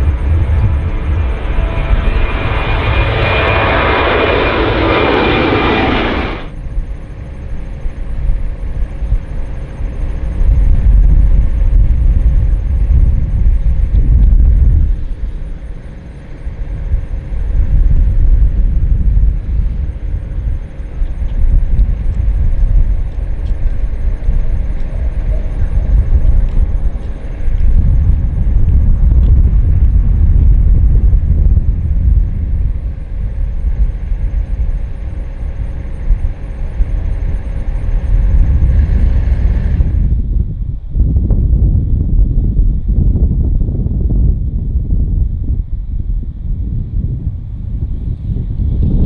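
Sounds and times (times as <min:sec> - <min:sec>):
jet engine roaring: 0:00.0 - 0:06.6, 0:34.1 - 0:40.0
low rumble: 0:00.0 - 0:06.7.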